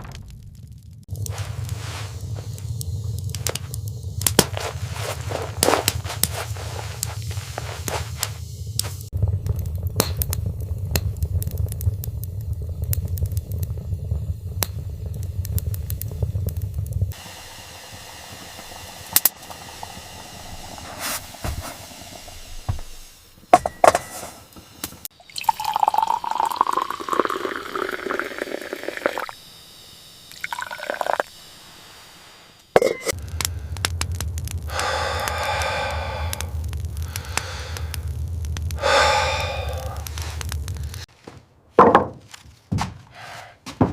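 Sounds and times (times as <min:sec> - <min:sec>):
liquid pouring into container: 0:25.2 - 0:29.3, 0:30.3 - 0:31.3.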